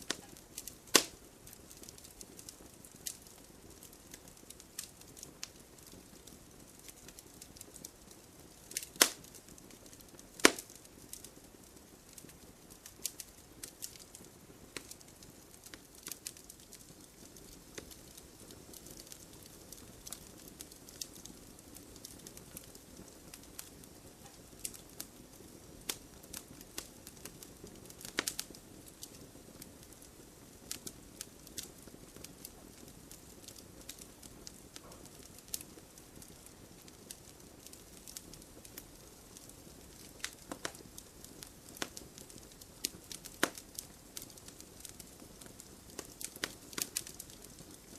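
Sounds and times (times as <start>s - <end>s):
campfire hissing: 0.0s - 47.9s
wood crackling and popping: 0.0s - 47.9s.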